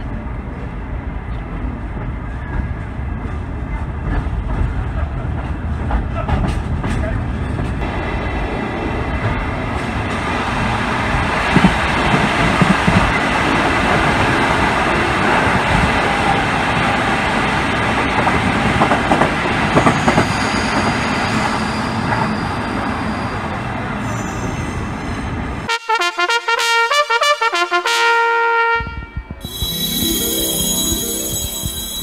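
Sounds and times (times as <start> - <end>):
train running noise: 0.0 - 25.7, 28.9 - 32.0
train passing alongside: 0.0 - 25.8, 28.9 - 32.0
brass music jingle: 25.7 - 28.8, 29.4 - 32.0.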